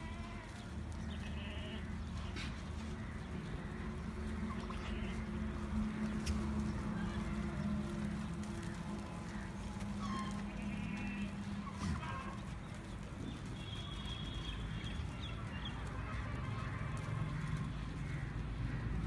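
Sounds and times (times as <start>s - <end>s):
faint goat calls: 0.0s - 2.6s, 10.0s - 12.4s
goats moving about: 0.0s - 19.0s.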